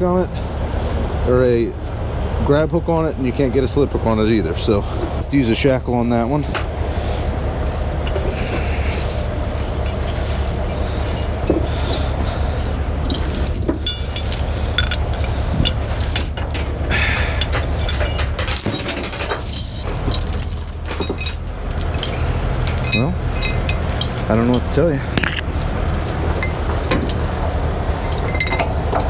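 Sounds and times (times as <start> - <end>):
steady low rumble: 0.0 - 29.0
chains clinking and rattling: 7.6 - 29.0.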